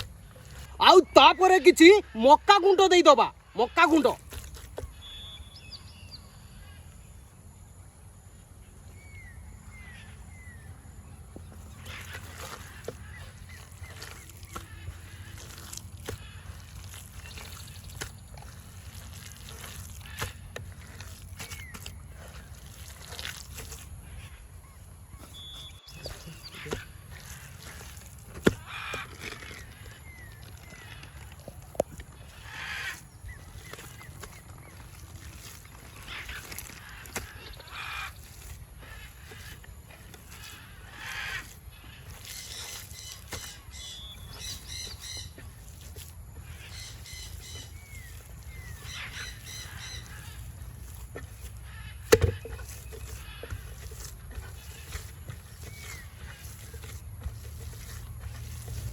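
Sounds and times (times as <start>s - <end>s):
birds calling: 0.0s - 7.6s, 8.4s - 58.9s
faint bird chirps: 4.8s - 7.3s, 24.1s - 28.0s.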